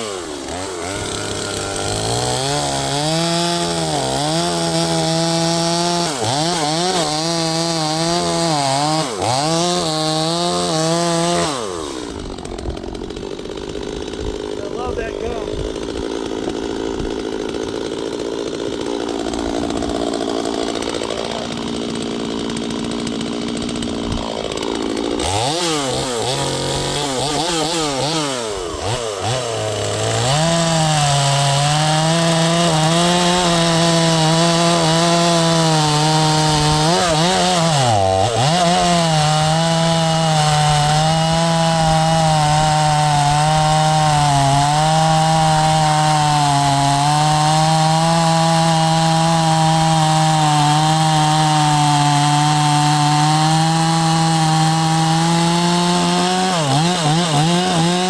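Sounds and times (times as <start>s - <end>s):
chainsaw running and revving: 0.0s - 58.0s.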